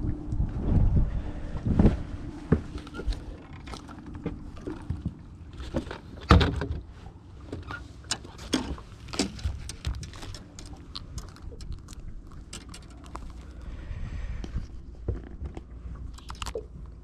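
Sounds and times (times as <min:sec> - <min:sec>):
faint steady hum: 0:00.0 - 0:17.0
gear knocks and thumps: 0:08.1 - 0:13.0.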